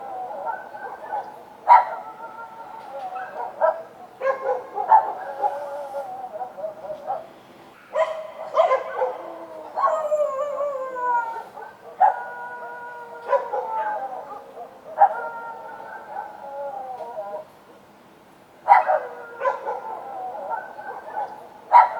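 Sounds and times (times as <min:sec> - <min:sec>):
dogs barking: 0:00.0 - 0:02.4, 0:03.0 - 0:10.4, 0:11.5 - 0:12.6, 0:13.2 - 0:16.5, 0:18.6 - 0:21.9
dogs howling: 0:00.0 - 0:07.3, 0:07.9 - 0:17.5, 0:18.6 - 0:21.9.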